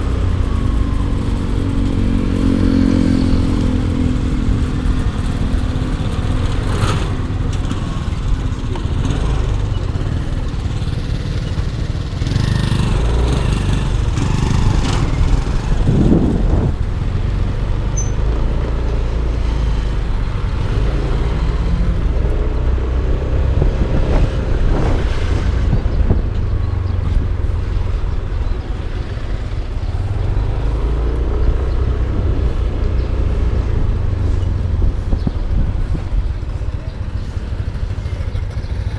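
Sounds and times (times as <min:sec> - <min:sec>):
vehicles passing: 0:00.0 - 0:38.9
scooter engine running: 0:00.2 - 0:18.1, 0:34.6 - 0:38.9.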